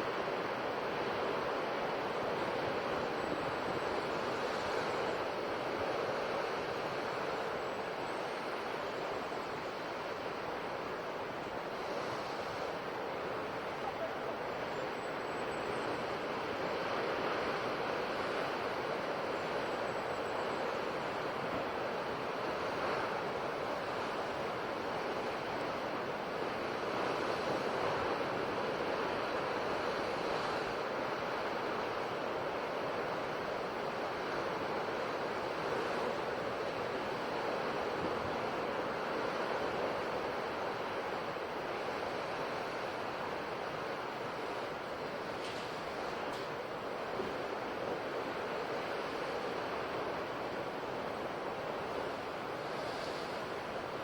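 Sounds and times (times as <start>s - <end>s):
ocean waves breaking on shore: 0.0s - 54.0s.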